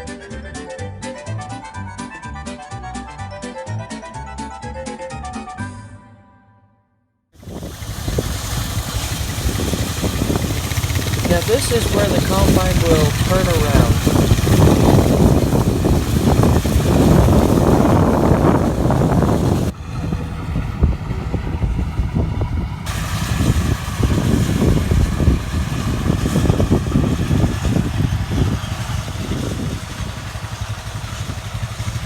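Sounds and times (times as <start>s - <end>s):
combine harvester engine drone: 7.4s - 32.0s.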